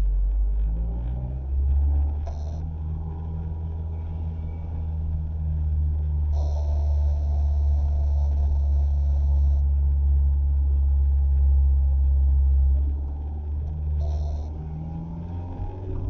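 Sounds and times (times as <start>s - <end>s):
car engine and road noise: 0.0s - 16.0s
faint high steady tone: 2.4s - 10.5s.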